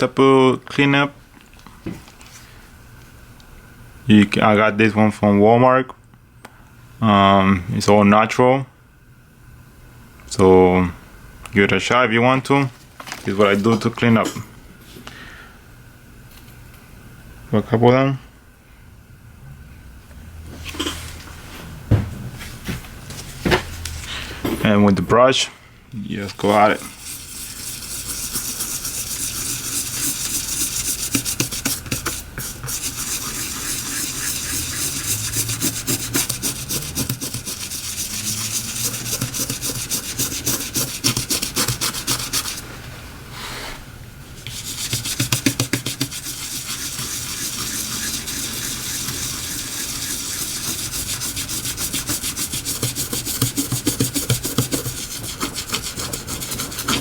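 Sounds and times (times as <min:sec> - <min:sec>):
brush scrubbing phone screen: 0:26.3 - 0:42.6, 0:44.4 - 0:57.0.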